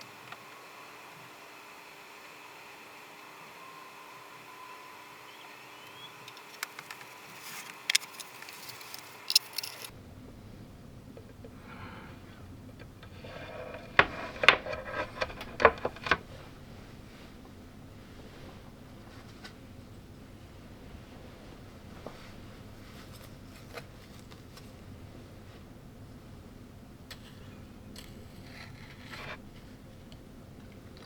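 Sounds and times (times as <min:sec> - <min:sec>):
food crunching: 0:06.4 - 0:09.9
utensils clicking on dishes: 0:07.7 - 0:09.9.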